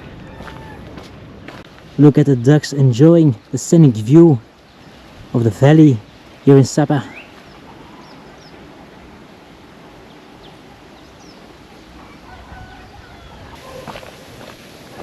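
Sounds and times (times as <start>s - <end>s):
domestic fowl calling: 0.0s - 1.1s, 12.0s - 15.0s
small birds chirping: 2.2s - 8.9s, 9.8s - 15.0s.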